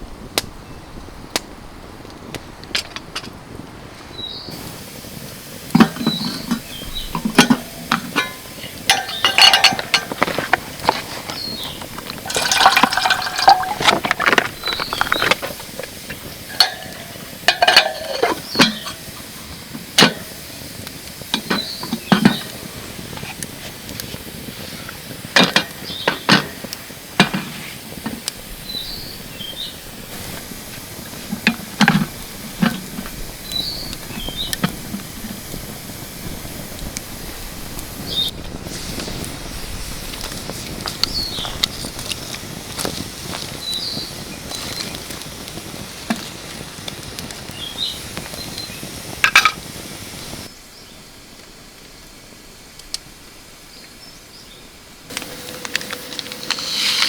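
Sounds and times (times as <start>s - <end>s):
cookware and dishes clinking: 5.7s - 20.4s.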